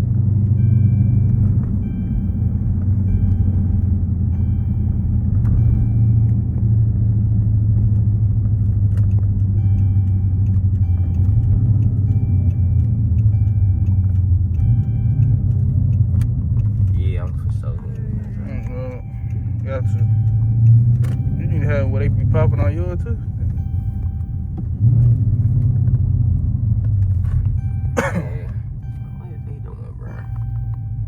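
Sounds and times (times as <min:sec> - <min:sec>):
car engine idling: 0:00.0 - 0:31.0
dashboard warning chime: 0:00.4 - 0:06.8, 0:09.5 - 0:15.8, 0:17.8 - 0:25.5, 0:27.5 - 0:31.0.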